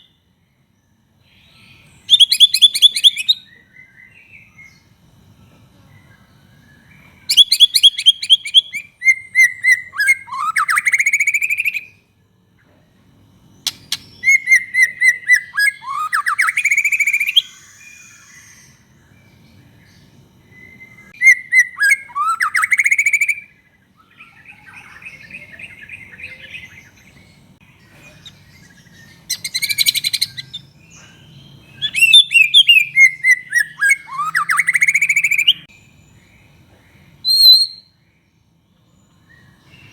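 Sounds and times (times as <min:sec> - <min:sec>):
bird singing with whistles: 0:00.0 - 0:00.2, 0:01.4 - 0:04.8, 0:06.6 - 0:12.0, 0:13.6 - 0:18.8, 0:20.5 - 0:27.0, 0:28.2 - 0:35.7, 0:37.2 - 0:38.0.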